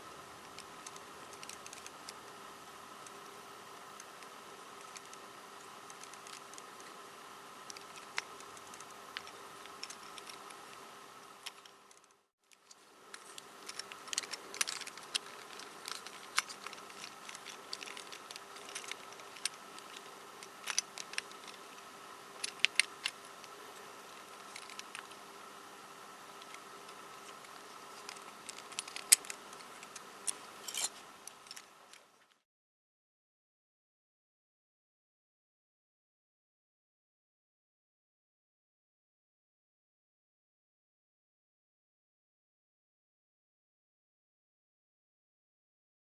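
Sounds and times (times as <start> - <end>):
steady background hum: 0.0 - 32.4.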